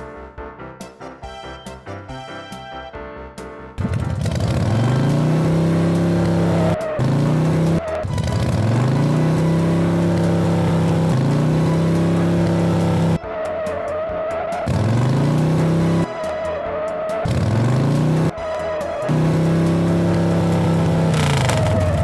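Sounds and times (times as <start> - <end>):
car engine revving: 3.8 - 13.2, 14.5 - 16.1, 17.2 - 18.4, 19.0 - 22.0
tire squeals: 4.1 - 22.0.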